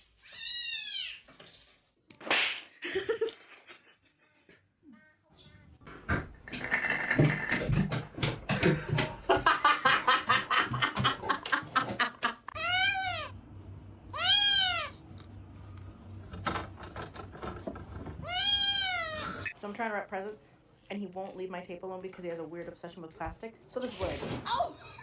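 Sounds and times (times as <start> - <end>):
cat meowing: 14.1 - 15.0, 18.2 - 19.4.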